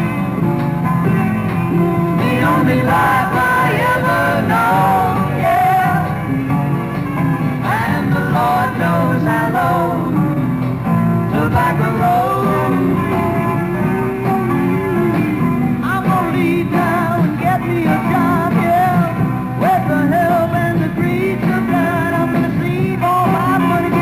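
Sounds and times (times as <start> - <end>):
bass guitar: 0.0 - 24.0
electric guitar: 0.0 - 24.0
person singing: 2.2 - 6.2, 7.6 - 10.2, 11.3 - 24.0.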